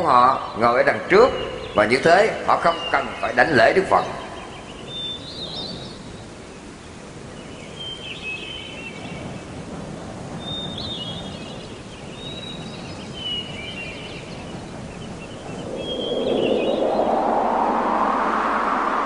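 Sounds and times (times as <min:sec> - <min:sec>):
steady low hiss: 0:00.0 - 0:19.0
birds chirping: 0:10.6 - 0:19.0.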